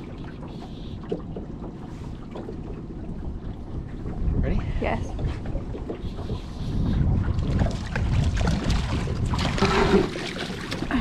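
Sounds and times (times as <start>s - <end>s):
small boat rumble: 0.0s - 11.0s
wind buffeting microphone: 2.2s - 11.0s.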